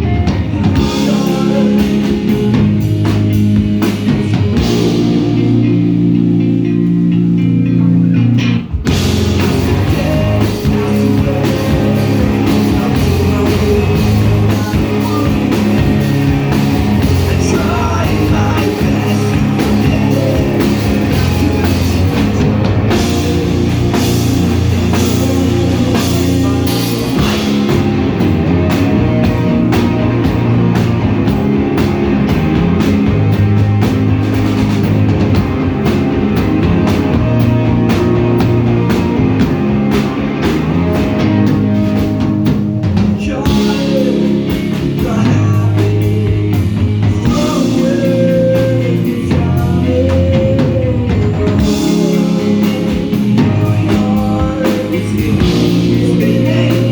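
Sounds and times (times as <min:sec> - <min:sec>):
person singing: 0:00.0 - 0:06.2, 0:08.9 - 0:28.0, 0:42.9 - 0:56.9
bass guitar: 0:00.0 - 0:56.9
distorted electric guitars: 0:00.0 - 0:56.9
drum kit: 0:00.0 - 0:56.9.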